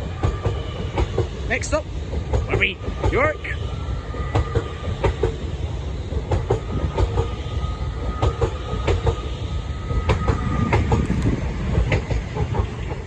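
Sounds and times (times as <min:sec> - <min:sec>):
wheels clacking over rail joints: 0:00.0 - 0:03.3
train rumble: 0:00.0 - 0:13.0.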